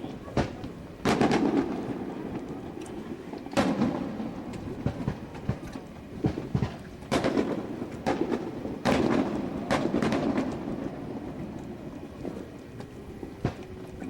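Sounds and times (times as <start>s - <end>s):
fireworks booming: 0.0s - 13.8s.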